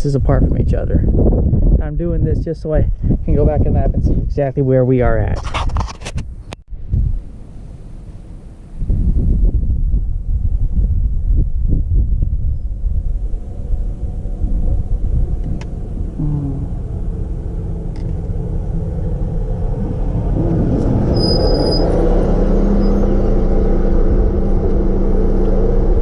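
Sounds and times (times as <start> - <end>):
wind buffeting microphone: 0.0 - 26.0
vehicle engine rumble: 5.2 - 26.0.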